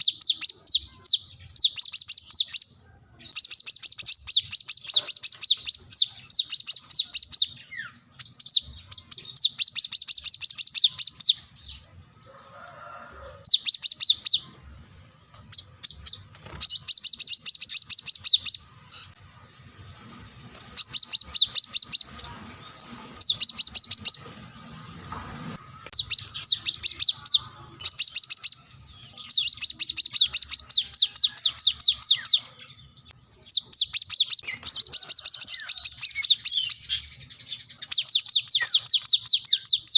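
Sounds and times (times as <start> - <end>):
bird high sharp chirps: 0.0 - 11.8, 13.5 - 14.6, 15.5 - 19.2, 20.7 - 24.4, 25.7 - 39.9.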